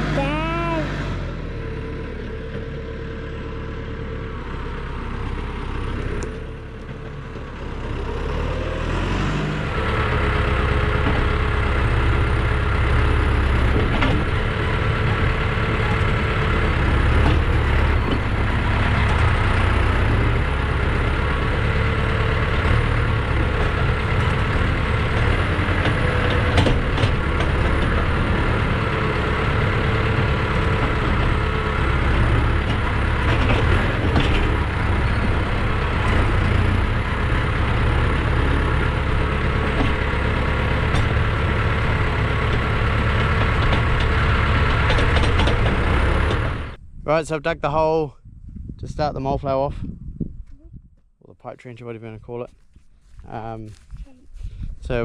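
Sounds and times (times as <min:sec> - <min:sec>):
diesel tractor engine running: 0:00.0 - 0:55.0.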